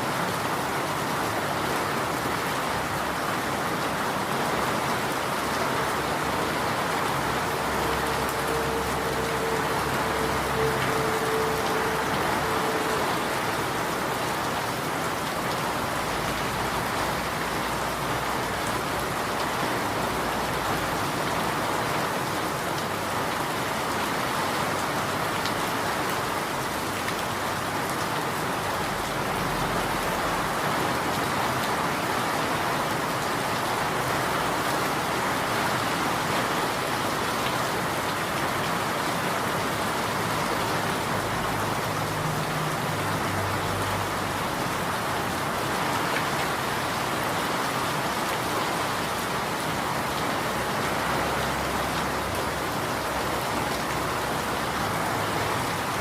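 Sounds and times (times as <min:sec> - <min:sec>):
rain pattering on surfaces: 0:00.0 - 0:56.0
faint steady tone: 0:06.3 - 0:14.1.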